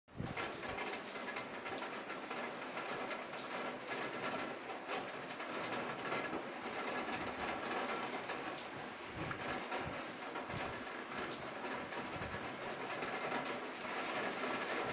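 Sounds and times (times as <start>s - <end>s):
raindrops ticking: 0.2s - 14.9s
rain hissing: 4.6s - 14.9s.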